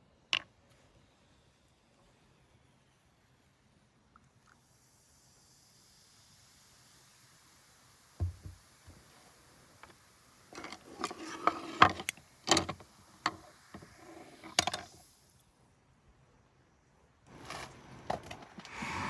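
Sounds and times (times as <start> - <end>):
single knock: 8.2 - 8.6
irregular clicks and clatter: 9.8 - 15.0.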